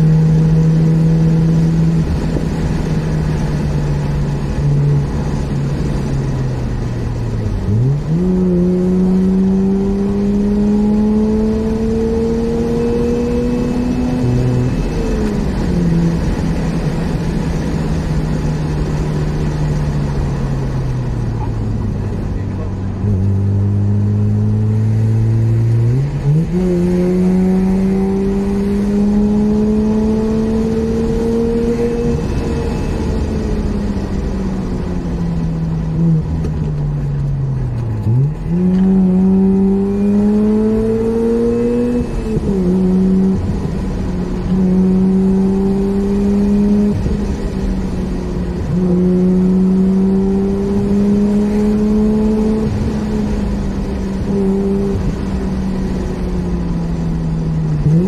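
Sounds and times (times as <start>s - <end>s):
rotary engine revving: 22.3s - 34.4s, 37.2s - 48.0s, 48.6s - 55.4s.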